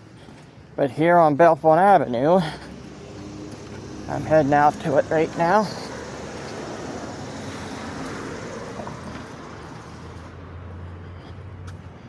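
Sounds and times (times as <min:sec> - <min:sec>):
low engine hum: 0:02.0 - 0:12.0
car driving past: 0:02.6 - 0:11.8.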